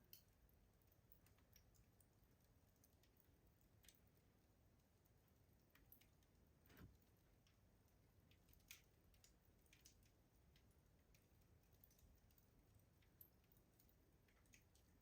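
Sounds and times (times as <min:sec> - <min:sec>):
wood fire pops and snaps: 0:05.7 - 0:15.0.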